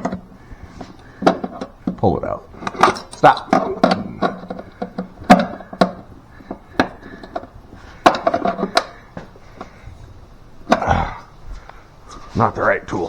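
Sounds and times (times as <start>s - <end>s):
clicks and rustling of hands working: 0.0s - 9.9s
sharp knocks: 2.6s - 9.8s.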